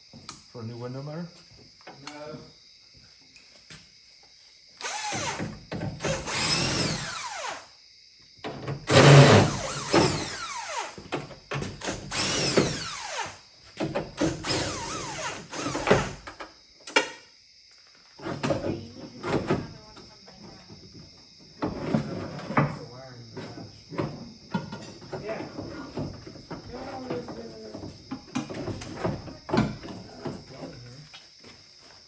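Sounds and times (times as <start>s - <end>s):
electric motor bursts: 4.8s - 7.7s, 8.9s - 11.0s, 11.9s - 13.4s, 14.3s - 16.2s.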